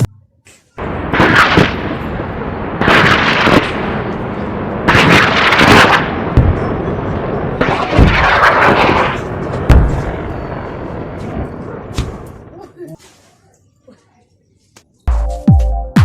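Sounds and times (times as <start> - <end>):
rocket launch whooshes: 1.1 - 1.9, 7.6 - 10.3.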